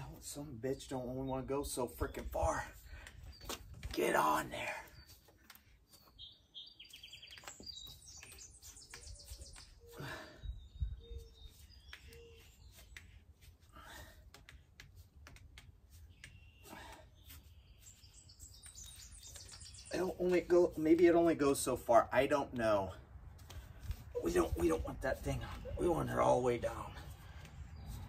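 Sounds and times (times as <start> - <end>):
faint birds chirping: 0.0 - 28.0
bird trill: 5.9 - 13.0, 16.1 - 20.3.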